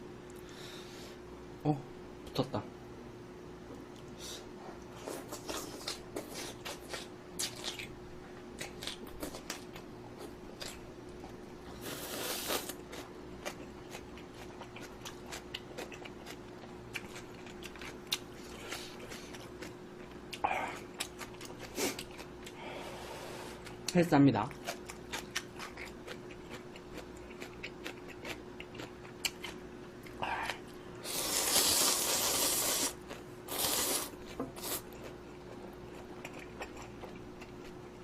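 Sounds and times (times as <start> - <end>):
faint steady hum: 0.0 - 38.0
chewing and crunching: 4.8 - 22.6, 23.6 - 38.0
noodle slurp: 11.8 - 12.7, 31.0 - 34.8.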